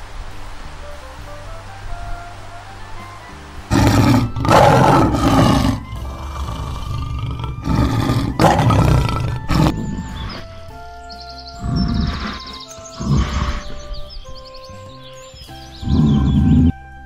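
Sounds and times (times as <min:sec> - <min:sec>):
lion roaring: 0:03.7 - 0:10.5, 0:11.6 - 0:13.9, 0:15.8 - 0:16.7.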